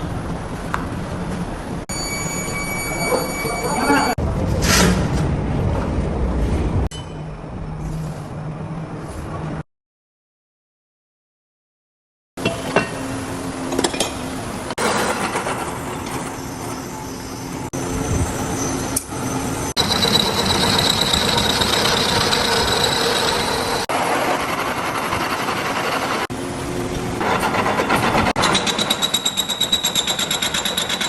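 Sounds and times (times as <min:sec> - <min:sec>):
factory machining noise: 0:12.8 - 0:31.0.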